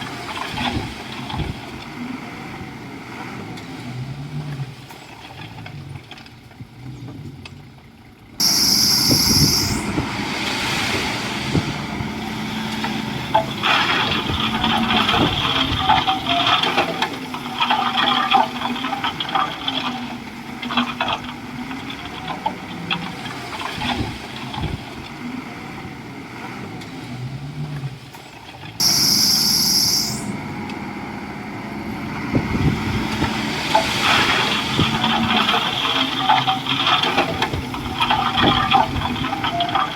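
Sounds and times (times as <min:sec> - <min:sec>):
machine clanking and rattling: 0:00.0 - 0:01.9, 0:09.2 - 0:25.2, 0:32.3 - 0:39.9
bulldozer diesel engine: 0:00.0 - 0:39.9
short high-pitched whine: 0:08.4 - 0:10.0, 0:28.8 - 0:30.4.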